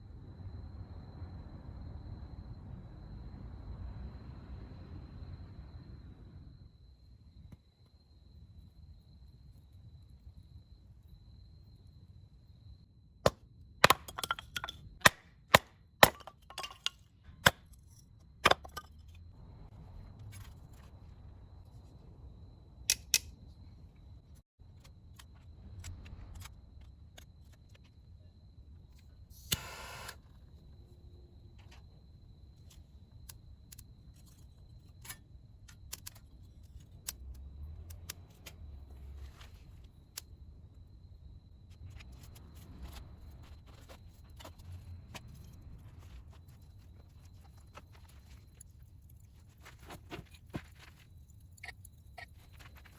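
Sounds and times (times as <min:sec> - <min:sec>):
hard objects clicking and knocking: 0:13.3 - 0:17.8, 0:18.4 - 0:19.1.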